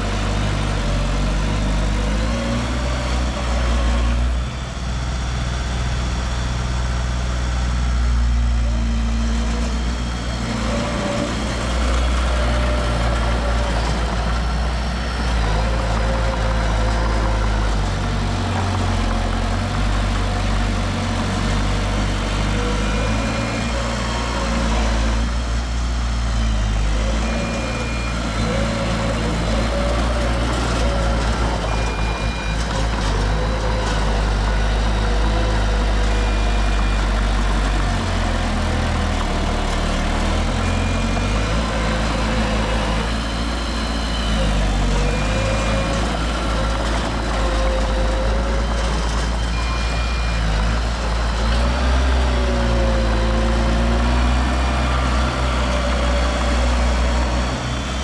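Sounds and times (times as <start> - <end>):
heavy machinery diesel engines: 0.0 - 58.0
short high beeps: 49.4 - 50.6.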